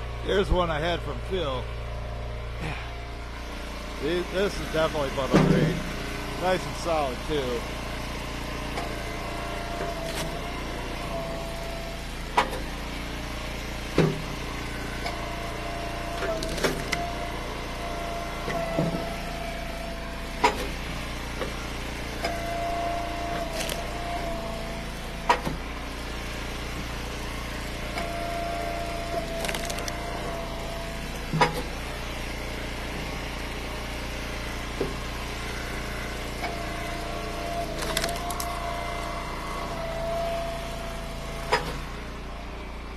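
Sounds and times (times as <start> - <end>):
wood splitter running: 0.0 - 42.9
firewood cracking and splitting: 9.8 - 10.9, 16.2 - 17.1, 23.2 - 25.0, 28.9 - 30.2, 36.3 - 39.2.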